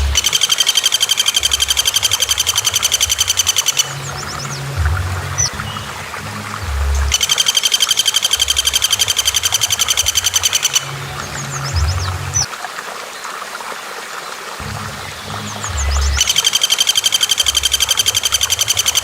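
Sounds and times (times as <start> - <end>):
low rumble: 0.0 - 0.2, 3.1 - 7.2, 10.8 - 12.5
bird rattling call: 0.0 - 4.4, 7.1 - 10.9, 15.9 - 19.0
bird chirps: 0.0 - 12.5, 14.6 - 19.0.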